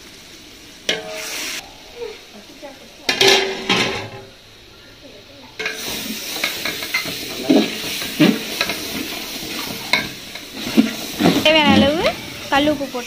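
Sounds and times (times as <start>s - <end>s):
masala sizzling in a pot: 0.0s - 13.0s
metal ladle scraping pot: 5.6s - 12.8s.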